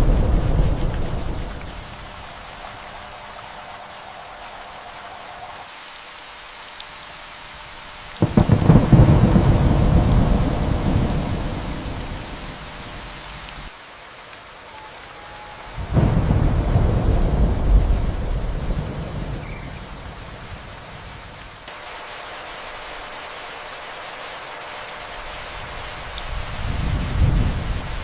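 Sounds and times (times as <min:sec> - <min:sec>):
thunder rumbling: 0:00.0 - 0:05.6, 0:08.2 - 0:13.1, 0:15.4 - 0:21.5, 0:25.6 - 0:28.0
steady rain: 0:00.0 - 0:28.0.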